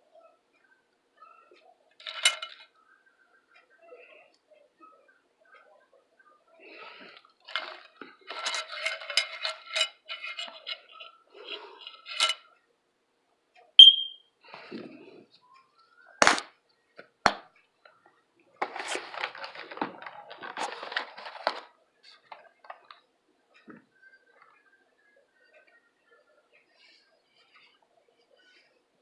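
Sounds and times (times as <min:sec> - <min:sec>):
cutlery clinking on dishware: 0:02.0 - 0:02.6, 0:07.5 - 0:12.4.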